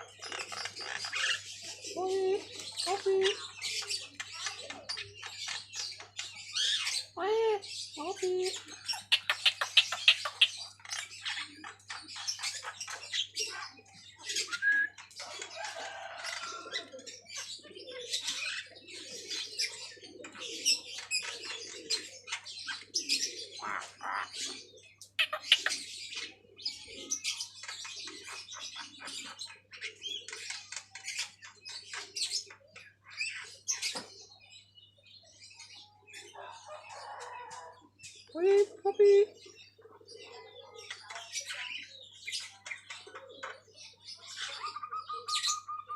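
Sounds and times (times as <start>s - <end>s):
bird chattering calls: 8.5s - 13.4s, 23.6s - 25.9s
bird whistled notes: 14.5s - 15.0s.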